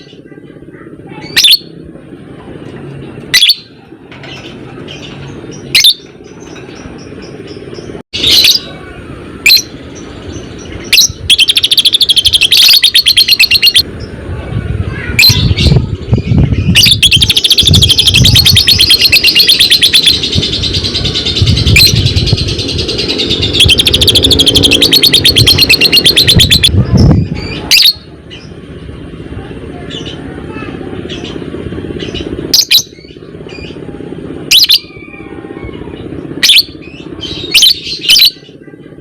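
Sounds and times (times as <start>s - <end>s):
lovebird chirping and chattering: 1.2s - 1.7s, 4.3s - 8.7s, 9.4s - 14.1s, 15.1s - 28.5s, 32.0s - 33.8s, 36.4s - 38.6s.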